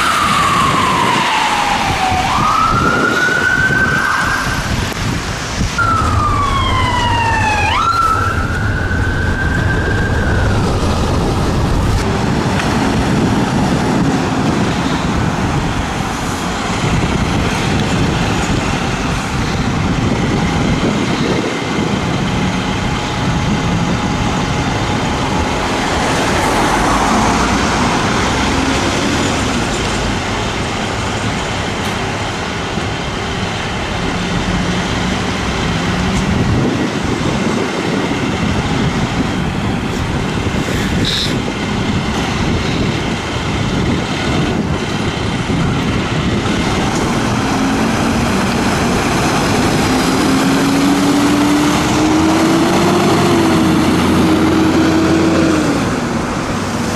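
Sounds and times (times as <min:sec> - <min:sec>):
vehicles driving past: 0:00.0 - 0:56.9
engine accelerating: 0:43.9 - 0:56.9.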